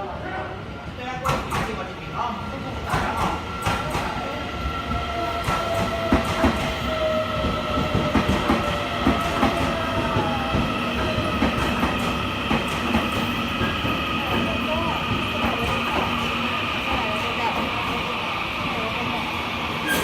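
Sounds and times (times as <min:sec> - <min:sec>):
steady train whine: 0:00.0 - 0:20.0
train wheels clacking on rails: 0:01.2 - 0:01.9, 0:02.8 - 0:18.0.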